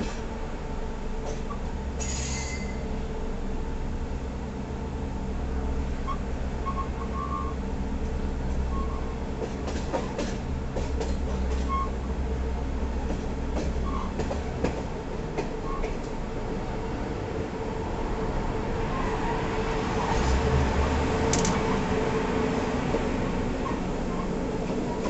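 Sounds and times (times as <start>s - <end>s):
train rumbling: 0.0s - 25.0s
faint wheel squeals: 2.0s - 2.8s
wheels clicking over rail joints: 21.3s - 21.7s.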